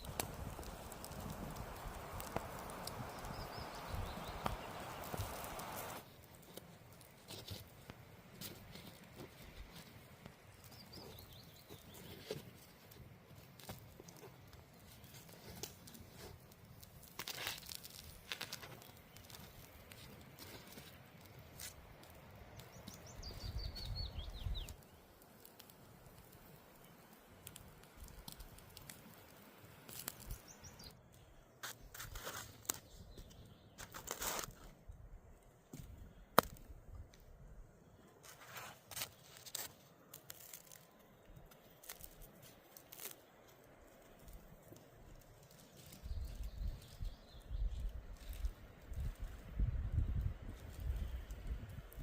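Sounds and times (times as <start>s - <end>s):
rustling: 0.0s - 23.5s, 31.6s - 34.8s, 38.2s - 49.5s.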